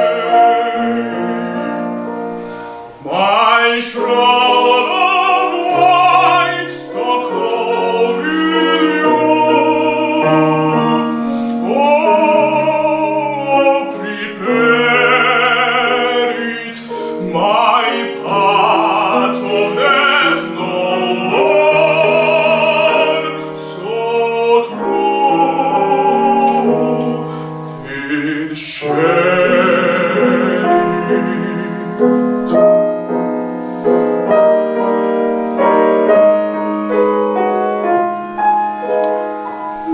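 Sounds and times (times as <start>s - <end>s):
tenor singing operatically: 0.0s - 2.2s, 2.9s - 33.0s
grand piano chords: 0.0s - 39.9s.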